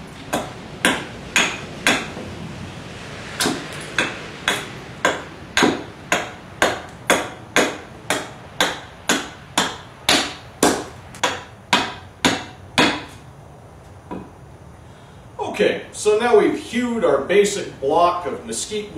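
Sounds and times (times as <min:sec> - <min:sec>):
hatchet chopping wood: 0:00.3 - 0:02.3, 0:03.4 - 0:13.2, 0:14.1 - 0:14.3.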